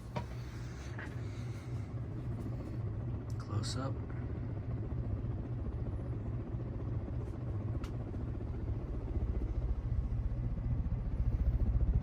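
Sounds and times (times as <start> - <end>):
ceiling fan running: 0.0 - 4.6.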